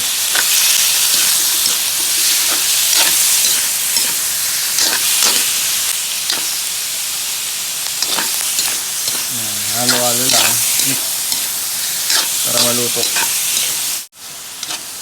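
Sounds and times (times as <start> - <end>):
meat sizzling in hot oil: 0.0 - 15.0
spatula scraping and knocking pan: 0.3 - 5.5, 8.0 - 13.8.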